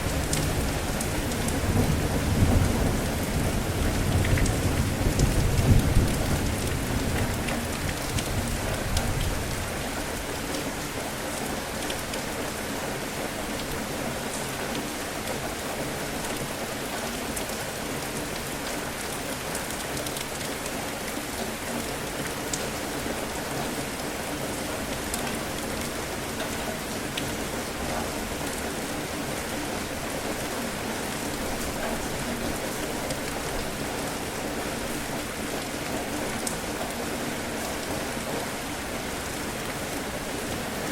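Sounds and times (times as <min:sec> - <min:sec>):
steady rain falling: 0:00.0 - 0:40.9
rumble of thunder: 0:00.1 - 0:09.6.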